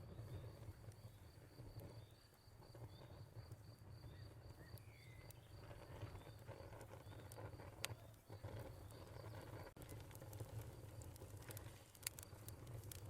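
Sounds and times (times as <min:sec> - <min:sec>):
crickets chirping: 0:00.0 - 0:09.7
fire crackling: 0:00.0 - 0:13.0.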